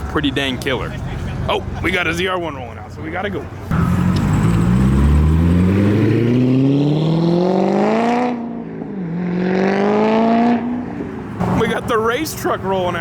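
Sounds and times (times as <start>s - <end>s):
car engine accelerating: 3.7s - 11.9s.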